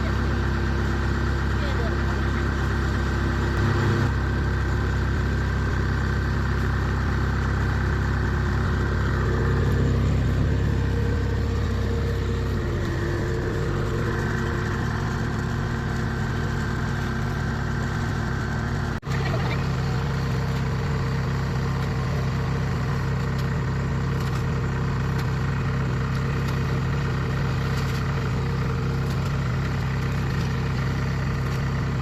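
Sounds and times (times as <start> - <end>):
combine harvester diesel engine: 0.0 - 32.0.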